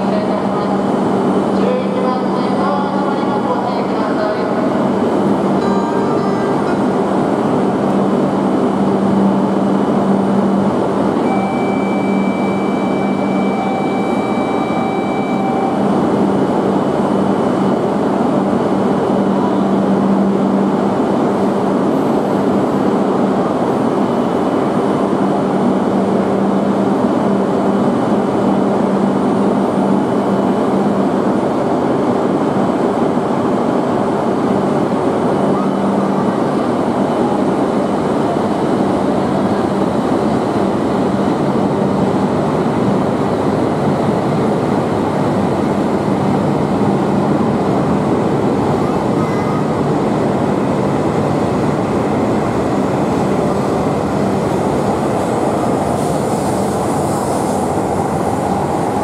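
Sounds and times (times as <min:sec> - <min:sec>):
train hum and rumble: 0:00.0 - 0:59.0
steady electronic tone: 0:11.2 - 0:16.6.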